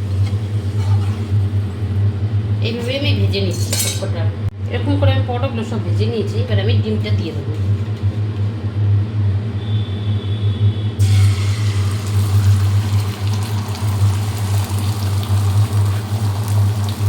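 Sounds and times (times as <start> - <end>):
egg sizzling in hot oil: 0.0 - 2.0, 11.0 - 17.0
steady low hum: 0.0 - 13.2.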